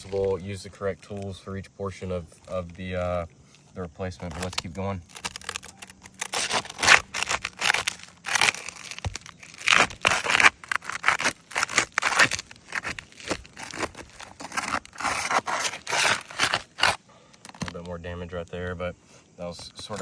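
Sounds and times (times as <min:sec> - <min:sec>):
roof shingles scraping and tearing: 0:00.0 - 0:01.3, 0:04.1 - 0:17.8.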